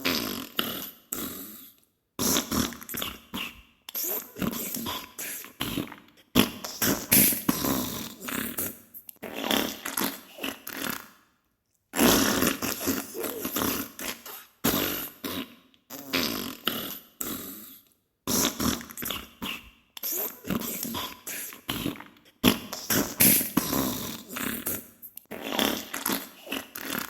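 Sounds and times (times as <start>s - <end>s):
wet farting: 12.0s - 16.6s.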